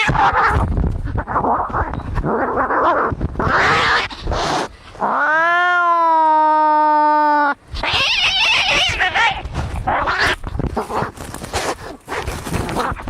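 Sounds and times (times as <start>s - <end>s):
cats hissing and screeching: 0.0s - 13.0s
cat yowling: 2.5s - 4.4s, 5.0s - 10.4s.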